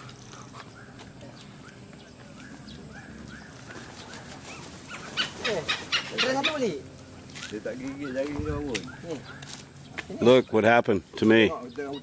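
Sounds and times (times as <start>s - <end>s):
birds chirping in a flock: 0.0s - 12.0s.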